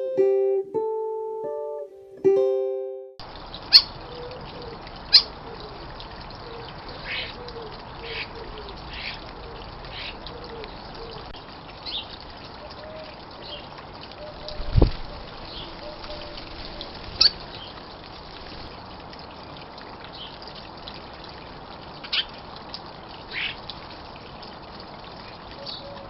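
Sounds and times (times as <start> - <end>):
plucked guitar music: 0.0 - 3.2.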